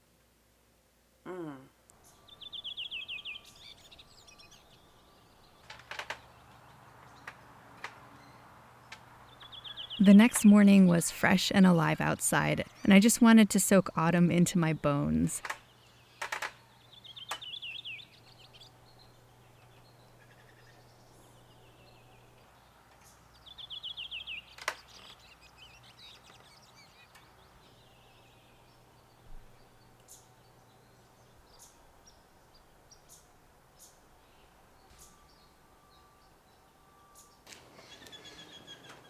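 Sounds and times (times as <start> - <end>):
bird calling: 37.5 - 39.0.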